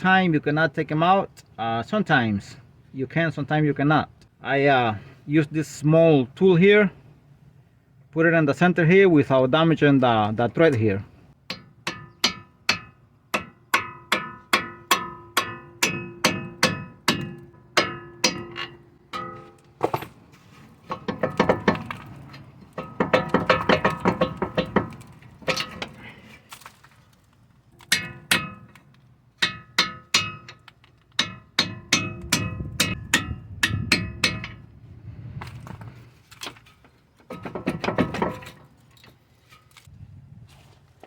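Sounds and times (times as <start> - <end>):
hammer striking metal: 11.5 - 20.0, 31.2 - 34.6.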